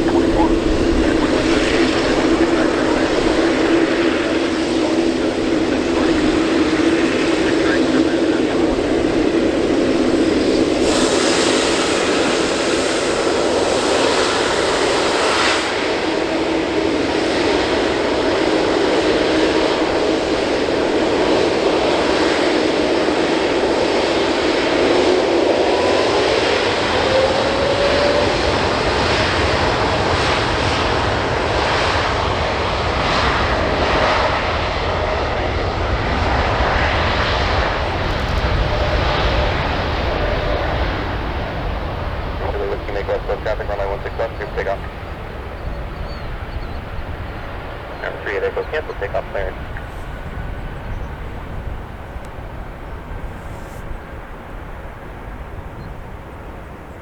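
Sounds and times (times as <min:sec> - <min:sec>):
deep rumble: 0:00.0 - 0:11.7, 0:34.7 - 0:54.0
rising engine whine: 0:00.0 - 0:13.7
jet engine roar: 0:00.0 - 0:57.0.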